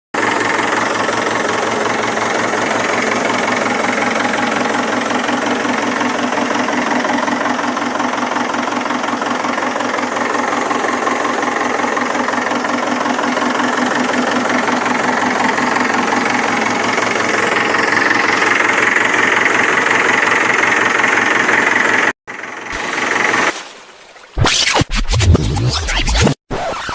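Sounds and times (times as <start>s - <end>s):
tractor engine chugging: 0.2s - 23.5s.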